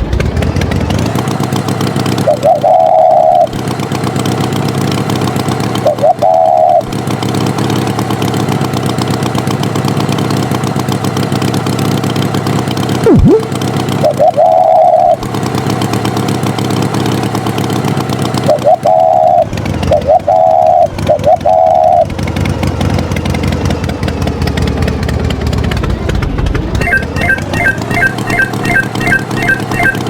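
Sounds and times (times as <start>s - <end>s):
tractor engine running: 0.0s - 30.0s
loud higher tone: 13.0s - 13.5s, 26.8s - 30.0s
dipping and rising glide: 13.0s - 13.6s, 26.8s - 30.0s.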